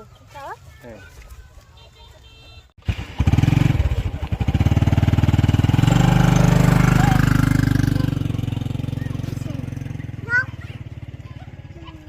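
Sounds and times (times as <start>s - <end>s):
small engine starting and running: 2.8s - 12.0s.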